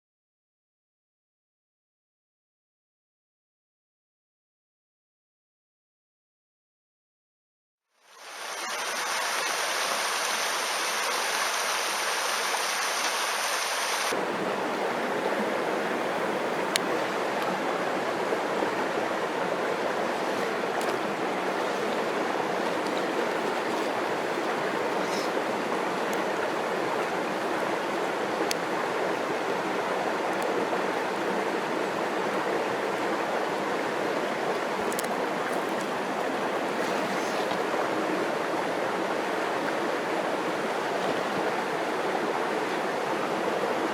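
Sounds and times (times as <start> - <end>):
stream rushing: 8.2 - 43.9
faint clicks: 34.5 - 35.9.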